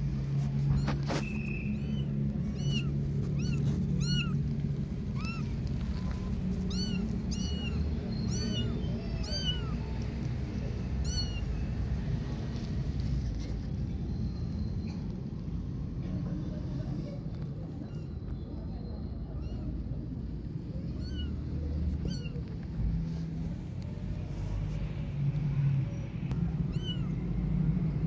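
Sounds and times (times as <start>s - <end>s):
steady low rumble: 0.0s - 28.0s
kitten mewing: 0.6s - 4.5s, 5.1s - 10.0s, 20.9s - 22.5s, 26.7s - 27.2s.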